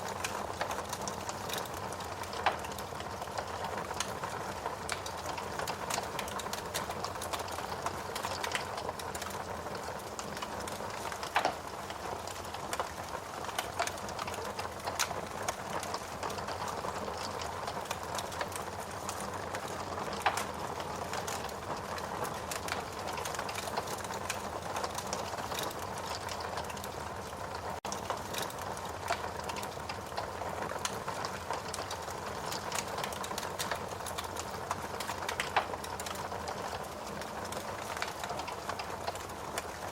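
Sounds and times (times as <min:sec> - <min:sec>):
fire crackling in a fireplace: 0:00.0 - 0:39.9
fire pops: 0:00.2 - 0:04.1, 0:10.4 - 0:18.8, 0:19.6 - 0:21.6, 0:35.0 - 0:36.3.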